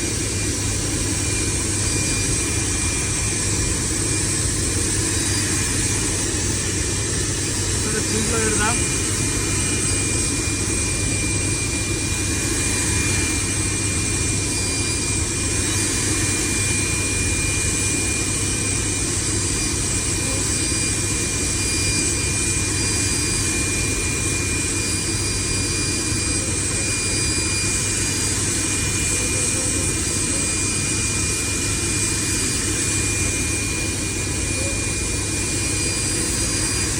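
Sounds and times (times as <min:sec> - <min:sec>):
high whine: 0:00.0 - 0:20.4
turbine running: 0:00.0 - 0:36.9.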